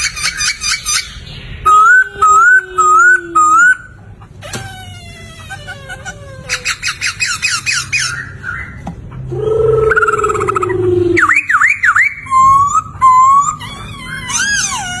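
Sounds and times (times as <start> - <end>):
bird singing whistled phrases: 0.2 - 4.0, 9.6 - 13.6.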